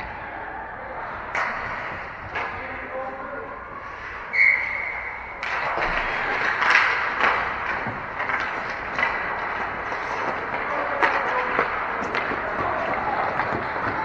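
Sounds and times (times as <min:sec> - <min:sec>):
hockey sticks and puck clacking: 0:01.1 - 0:14.0
skates scraping on ice: 0:03.8 - 0:14.0
high whistle tone: 0:04.3 - 0:05.2.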